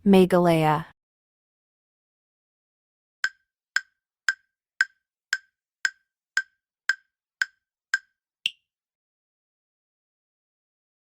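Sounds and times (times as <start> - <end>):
wood-block timer ticks: 3.2 - 8.6.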